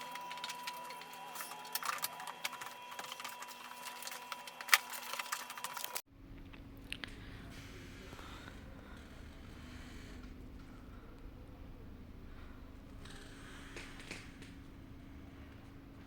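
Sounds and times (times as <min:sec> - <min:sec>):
cardboard clicks and crinkles: 0:00.0 - 0:06.0
faint steady hum: 0:00.0 - 0:16.0.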